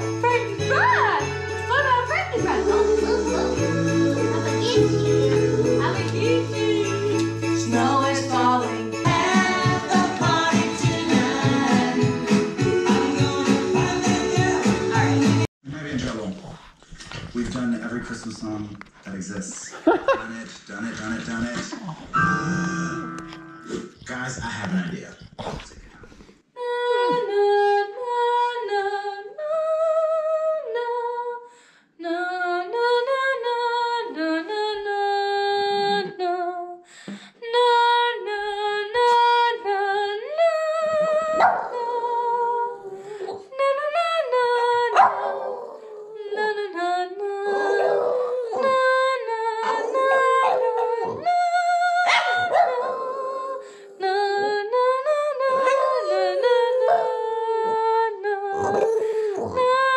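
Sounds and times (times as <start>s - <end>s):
dogs howling: 44.9s - 46.1s, 47.4s - 53.6s, 55.4s - 57.4s, 58.5s - 59.9s.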